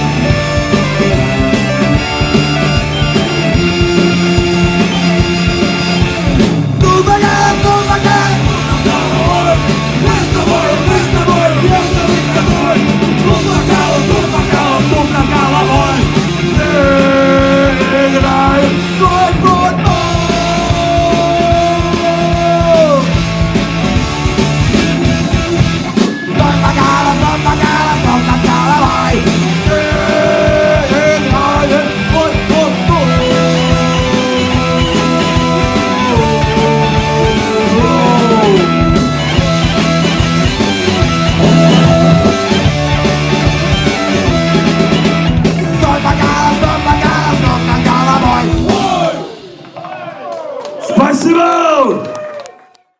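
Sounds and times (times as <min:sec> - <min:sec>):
sliding lead guitar notes: 0:00.0 - 0:50.0
punk rock band playing live: 0:00.0 - 0:50.1.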